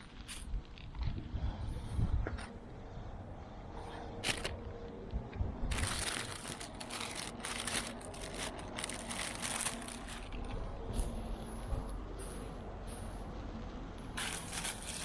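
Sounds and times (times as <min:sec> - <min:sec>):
crinkling and rustling: 0:00.0 - 0:01.2, 0:04.1 - 0:04.8, 0:05.7 - 0:13.2, 0:13.9 - 0:15.0.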